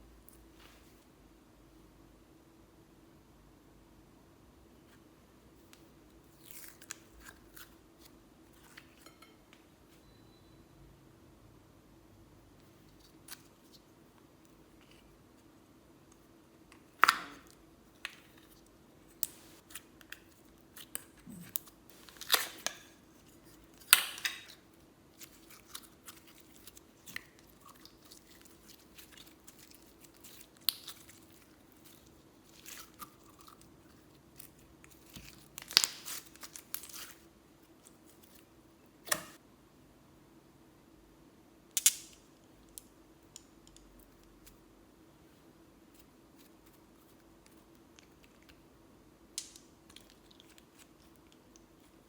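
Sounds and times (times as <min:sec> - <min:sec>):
slime sticky pops and crackles: 0:16.8 - 0:18.4, 0:25.2 - 0:33.1, 0:34.4 - 0:37.0.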